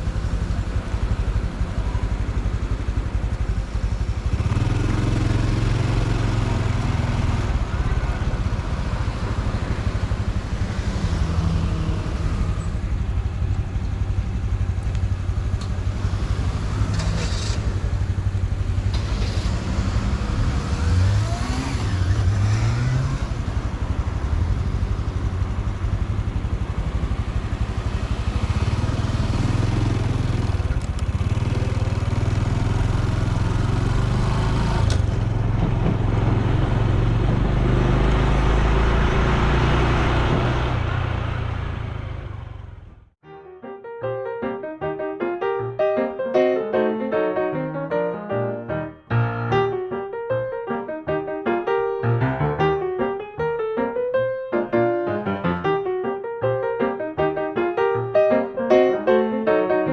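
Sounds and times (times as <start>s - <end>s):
motorcycle engine running: 0.0s - 43.2s.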